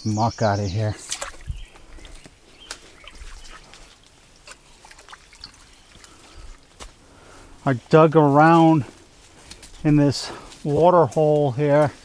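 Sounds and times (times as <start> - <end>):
water trickling: 0.2 - 8.5
muck scooping knocks and scrapes: 1.0 - 7.0.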